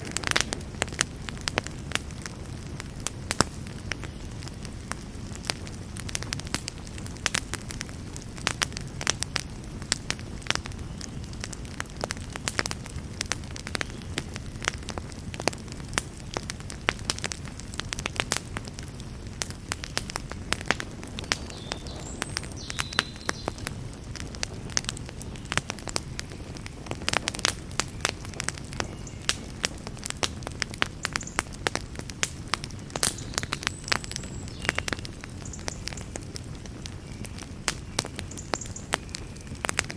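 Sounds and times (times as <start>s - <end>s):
burning wood crackling and popping: 0.0s - 39.9s
low rumble of flames: 0.0s - 39.9s.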